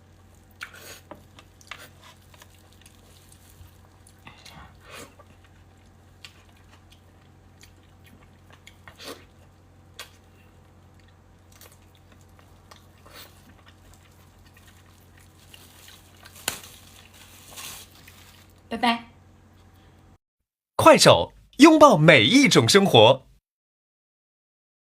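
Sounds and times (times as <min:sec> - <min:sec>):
chewing smacks: 0:00.4 - 0:16.6.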